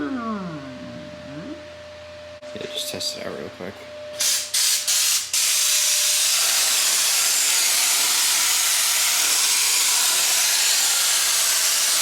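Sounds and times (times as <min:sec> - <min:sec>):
paint spray gun hissing: 0:04.2 - 0:12.0.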